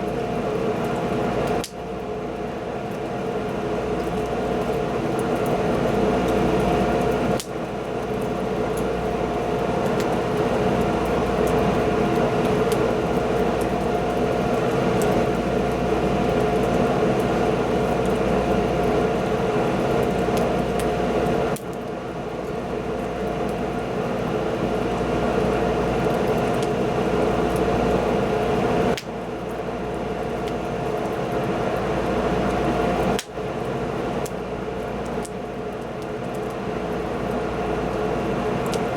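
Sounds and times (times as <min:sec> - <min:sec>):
fire crackles: 0:00.0 - 0:38.9.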